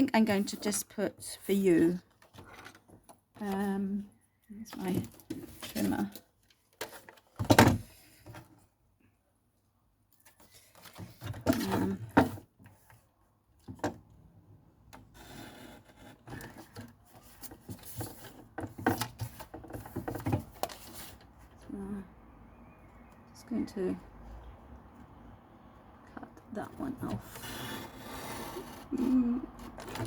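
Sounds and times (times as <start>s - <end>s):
paper scraping against trimmer: 27.0s - 30.0s.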